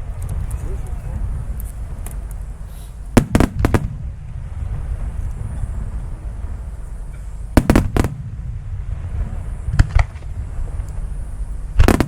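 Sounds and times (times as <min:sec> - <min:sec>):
steady low rumble: 0:00.0 - 0:12.0
fireworks bangs: 0:03.1 - 0:05.2, 0:07.5 - 0:11.1, 0:11.7 - 0:12.0.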